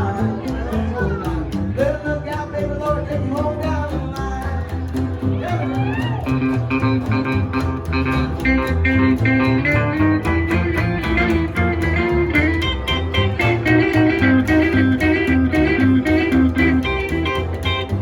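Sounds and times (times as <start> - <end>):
live band playing: 0.0 - 18.0
lead guitar melody: 4.7 - 18.0.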